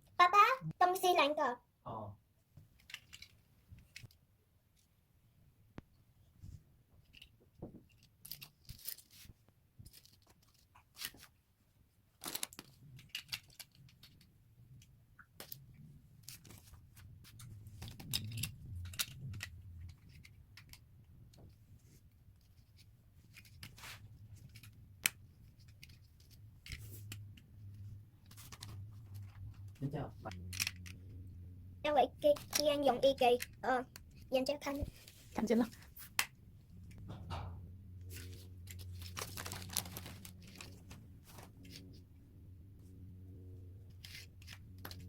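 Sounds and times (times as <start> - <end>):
rustling of plastic pieces: 38.2 - 41.8.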